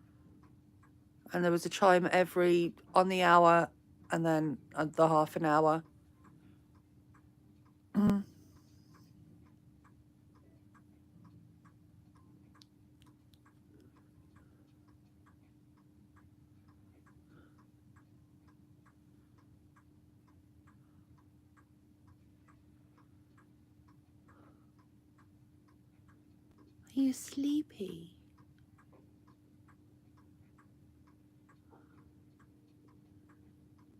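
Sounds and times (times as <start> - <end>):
mechanical clock ticking: 0.0 - 33.9
steady low hum: 0.0 - 33.9.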